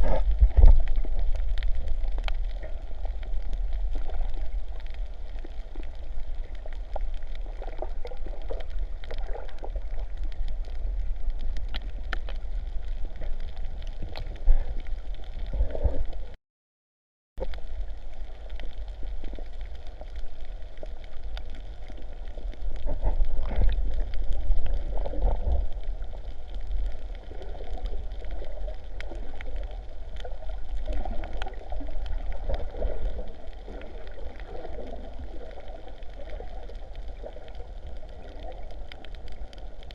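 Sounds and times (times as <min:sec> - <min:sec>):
sea water sloshing and gurgling: 0:00.0 - 0:16.4, 0:17.4 - 0:39.9
steady low rumble: 0:00.0 - 0:16.4, 0:17.4 - 0:39.9.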